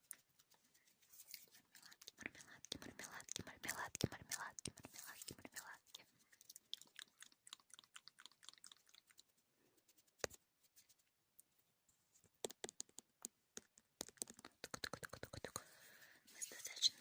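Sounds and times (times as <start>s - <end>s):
chewing sticky candy: 1.7s - 9.4s.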